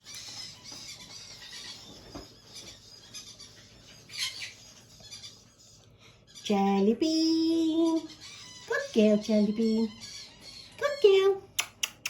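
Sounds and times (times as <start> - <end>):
parrot chirping and chattering: 0.0 - 12.0
parrot squawk: 0.1 - 5.7, 8.0 - 10.9.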